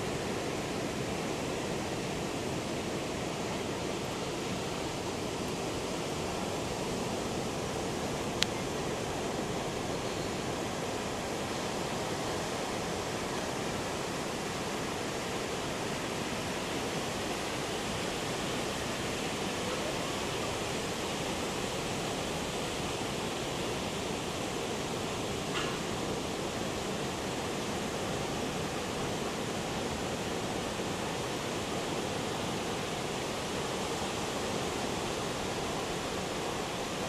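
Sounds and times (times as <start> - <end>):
heavy ocean surf breaking: 0.0 - 37.0.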